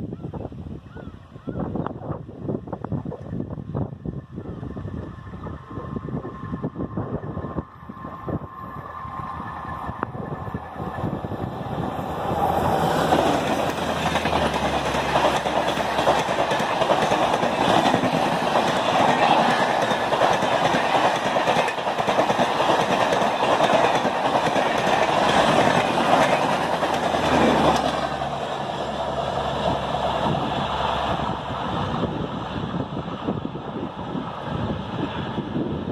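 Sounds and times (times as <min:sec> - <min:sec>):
train passing at high speed: 0:02.0 - 0:35.9
clickety-clack over rail joints: 0:12.4 - 0:33.4.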